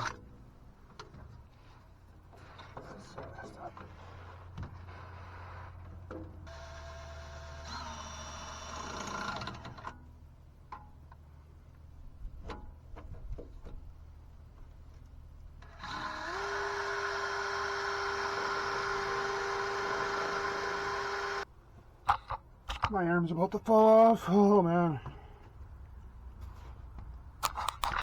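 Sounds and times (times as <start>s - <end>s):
power drill drilling: 6.5s - 9.9s, 15.6s - 21.5s
tool clicks and knocks: 27.4s - 28.0s.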